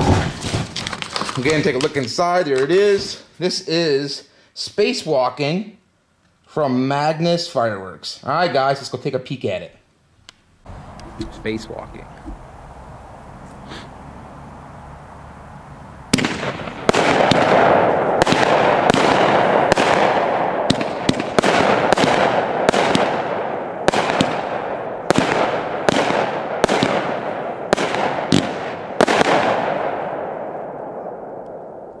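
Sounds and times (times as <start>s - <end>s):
firework reports: 10.7s - 12.4s, 15.6s - 30.1s
continuous firework noise: 15.6s - 32.0s.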